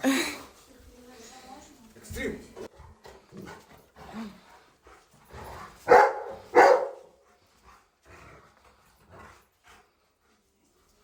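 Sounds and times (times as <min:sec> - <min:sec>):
dog barking: 0:05.9 - 0:07.2.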